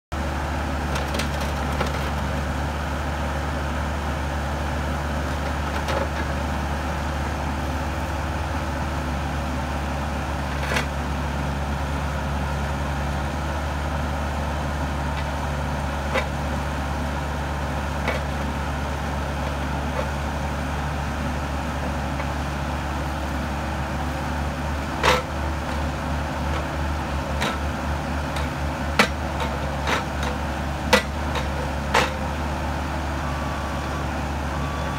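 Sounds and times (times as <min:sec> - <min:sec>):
excavator diesel engine running: 0:00.1 - 0:34.9
sharp clanks and knocks: 0:25.0 - 0:25.3, 0:28.3 - 0:32.2.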